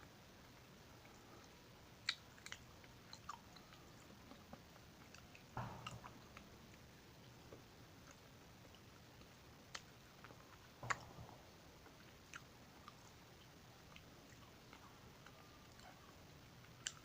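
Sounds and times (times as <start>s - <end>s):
mouth chewing sounds: 1.0s - 6.5s.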